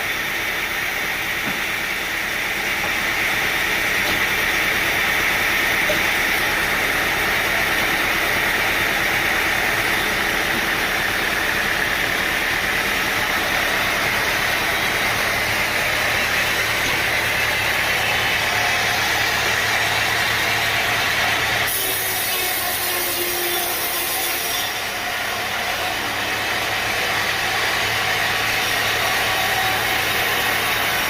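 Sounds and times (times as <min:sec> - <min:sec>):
sawmill machinery running: 0:00.0 - 0:31.0.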